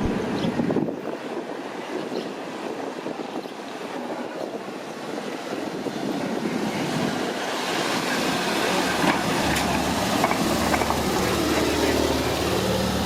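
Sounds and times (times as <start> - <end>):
street traffic noise: 0.0 - 13.0
heavy vehicle engine hum: 5.0 - 13.0.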